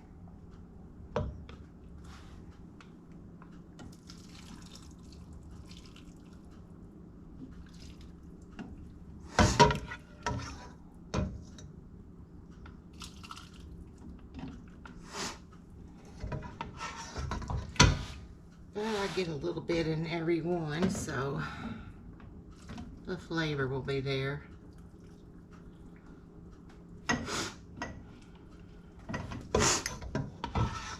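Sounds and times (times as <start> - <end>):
wet drips and small scrapes: 3.8 - 6.7, 7.4 - 9.0, 12.9 - 15.0, 24.7 - 26.2.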